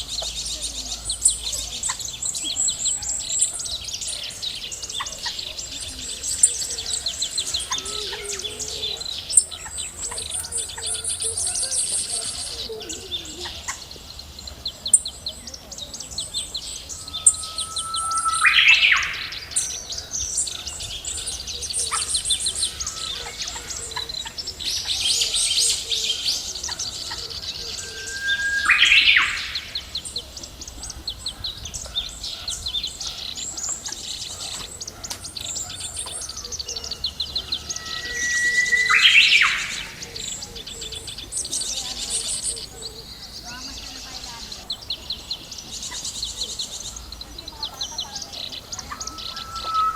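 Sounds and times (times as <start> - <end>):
birds chirping: 0.0 - 49.9
rising whistled bird call: 16.4 - 21.2, 27.5 - 30.2, 37.1 - 42.7, 48.0 - 49.9.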